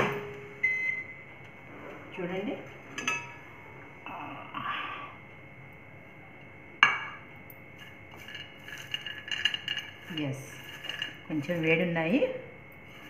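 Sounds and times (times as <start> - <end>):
microwave ring: 0.0 - 1.3.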